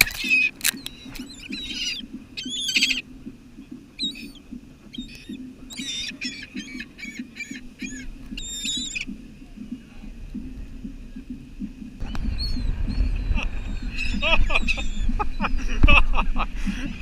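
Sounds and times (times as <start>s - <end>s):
seagulls squawking: 0.0s - 3.0s, 3.9s - 9.1s, 12.0s - 17.0s.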